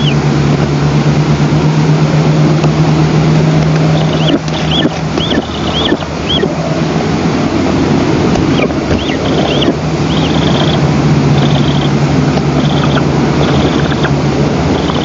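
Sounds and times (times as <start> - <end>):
nestlings chirping: 0.0 - 0.3, 3.6 - 6.8, 8.3 - 15.0
steady low hum: 0.0 - 15.0
wind buffeting microphone: 0.0 - 15.0.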